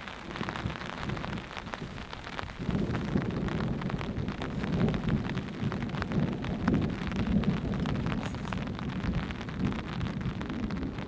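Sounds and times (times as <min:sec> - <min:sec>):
rain drops pattering: 0:00.0 - 0:11.0.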